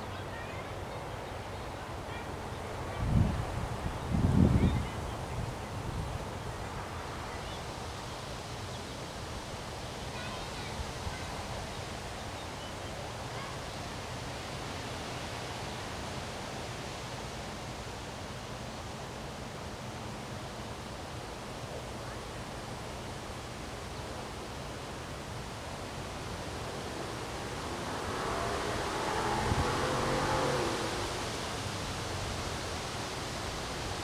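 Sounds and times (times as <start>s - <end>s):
strong wind blowing: 2.9s - 7.0s, 25.1s - 34.0s.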